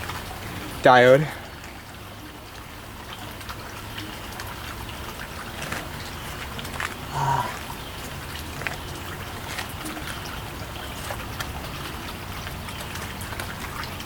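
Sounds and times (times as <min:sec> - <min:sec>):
small clicks and rustles of handling: 0:05.5 - 0:07.0.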